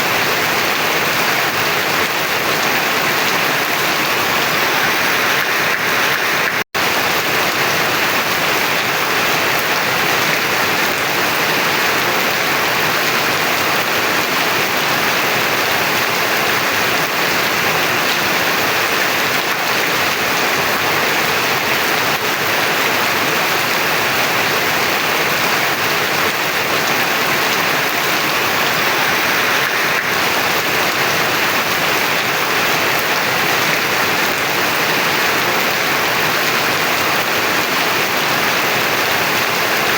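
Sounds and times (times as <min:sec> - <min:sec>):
heavy rain hissing: 0:02.0 - 0:08.4, 0:25.2 - 0:39.9.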